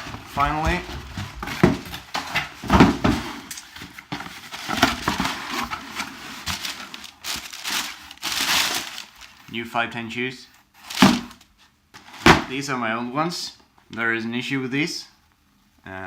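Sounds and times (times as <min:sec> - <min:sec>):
packaging rustling and crinkling: 0:00.0 - 0:09.6, 0:10.7 - 0:12.4.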